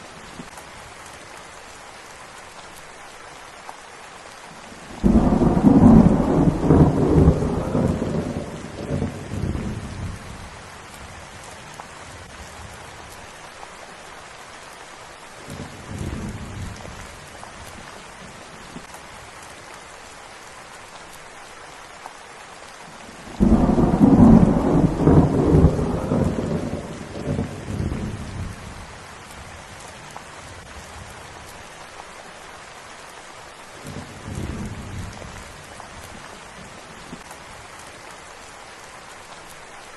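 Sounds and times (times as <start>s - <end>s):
steady rain: 0.0s - 39.9s
rolling thunder: 5.0s - 10.3s, 23.3s - 28.8s.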